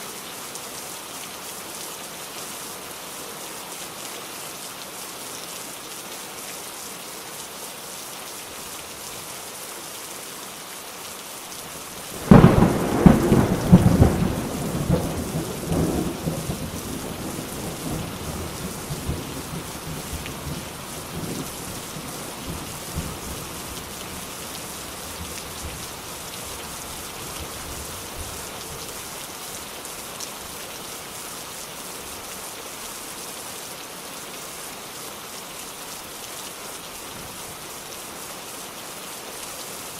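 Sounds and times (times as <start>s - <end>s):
steady rain: 0.0s - 39.9s
thunderclap rumbling: 12.2s - 21.4s.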